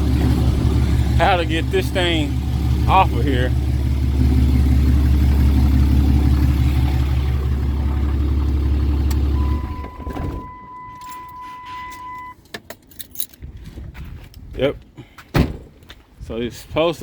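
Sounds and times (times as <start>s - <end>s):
vehicle engine idling: 0.0s - 12.3s
electronic warning chime: 9.4s - 12.4s.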